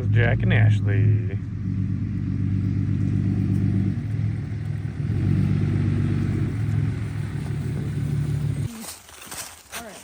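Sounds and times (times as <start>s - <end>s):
car engine humming: 0.0s - 8.8s.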